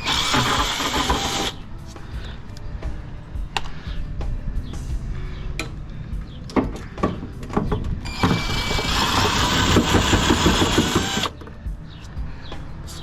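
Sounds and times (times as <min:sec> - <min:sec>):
power driver rattling: 0:08.1 - 0:11.3.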